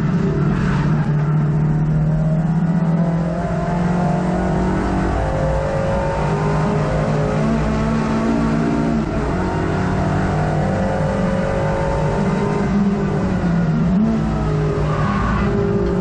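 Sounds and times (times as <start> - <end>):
race car engine running hard: 0.0 - 16.0.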